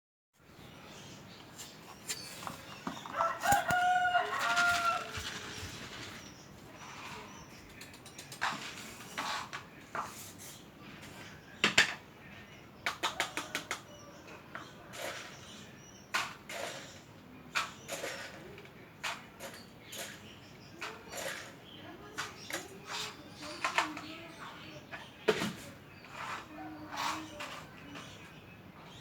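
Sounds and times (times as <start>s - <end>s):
rooster crowing: 3.1s - 5.4s.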